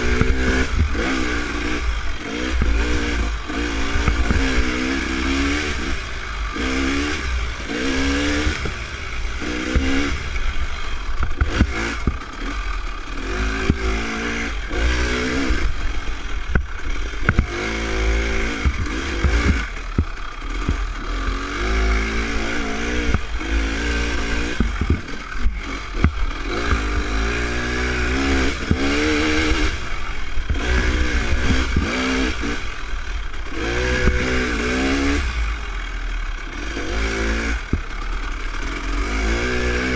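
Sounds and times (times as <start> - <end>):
dirt bike engine revving: 0.0 - 39.9
sharp clattering knocks: 11.1 - 12.6, 15.6 - 21.2, 22.0 - 32.5.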